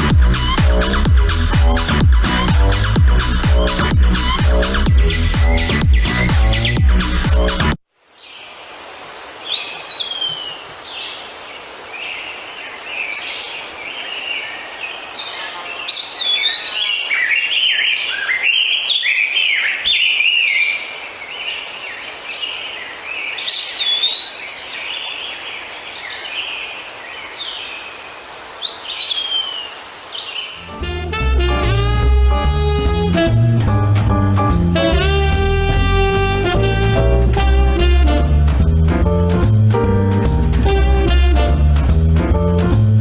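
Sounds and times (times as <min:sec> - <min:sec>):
birds singing and chirping: 0:04.6 - 0:07.0, 0:12.0 - 0:30.7
steady background hiss: 0:07.9 - 0:30.8.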